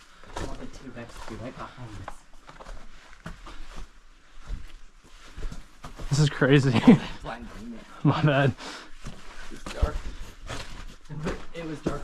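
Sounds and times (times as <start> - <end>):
footsteps on rock: 0.2 - 6.4, 9.0 - 12.0.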